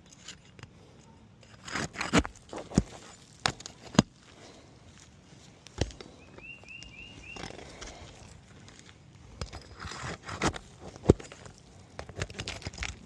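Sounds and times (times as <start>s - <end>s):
shingles scraping and crackling: 1.4s - 4.6s, 7.2s - 13.0s
bird chirping: 6.0s - 7.9s.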